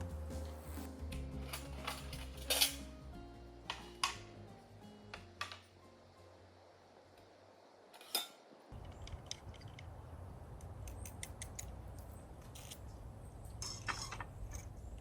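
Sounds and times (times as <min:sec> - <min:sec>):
sharp clicks and light ticking: 0:10.6 - 0:12.9.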